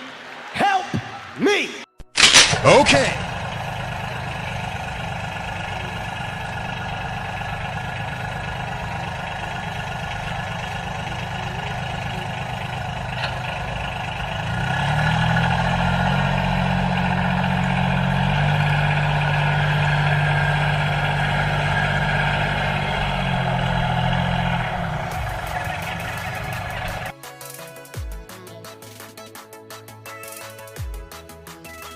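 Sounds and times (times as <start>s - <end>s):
motor humming: 2.2s - 27.1s.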